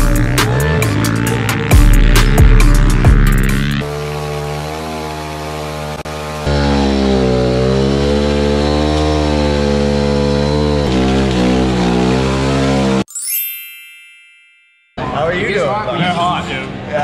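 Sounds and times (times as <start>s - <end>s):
pit bike engine revving: 0.0s - 13.1s
ringing chime-like effect: 13.1s - 15.5s.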